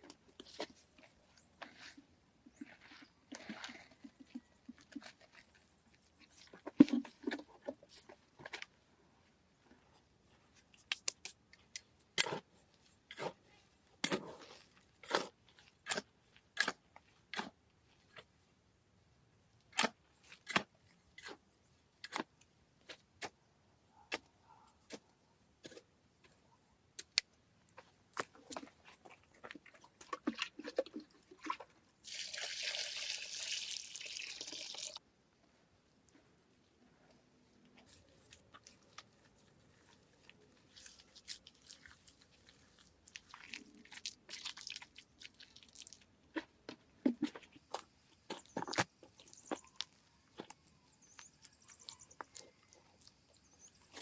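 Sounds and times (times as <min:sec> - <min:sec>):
water pouring: 0:31.4 - 0:35.0.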